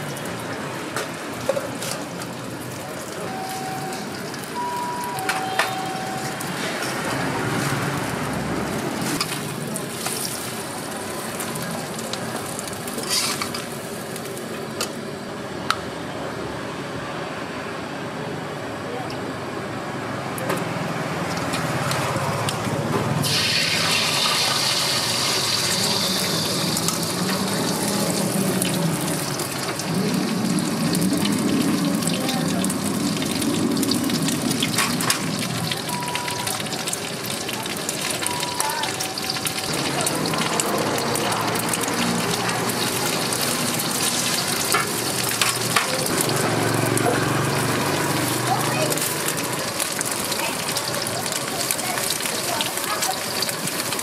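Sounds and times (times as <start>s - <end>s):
food sizzling in a pan: 7.4s - 15.1s, 23.2s - 54.0s.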